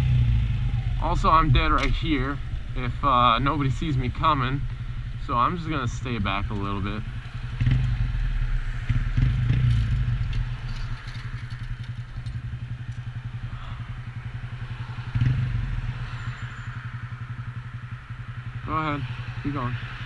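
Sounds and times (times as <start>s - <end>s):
small motorcycle engine idling: 0.0s - 20.0s.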